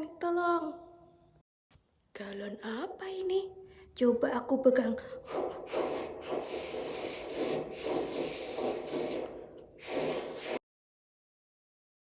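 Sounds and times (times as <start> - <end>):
rubbing on plastic jug: 5.3 - 10.6.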